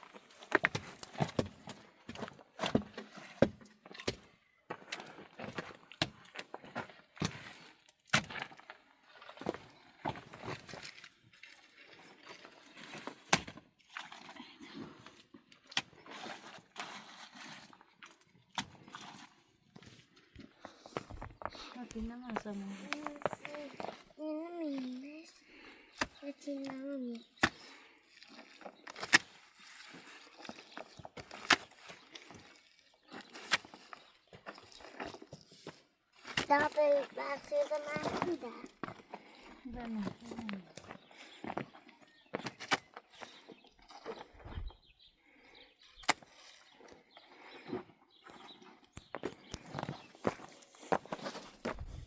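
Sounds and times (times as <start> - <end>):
rustling and scraping: 15.9 - 18.2, 18.8 - 25.4, 48.3 - 52.0.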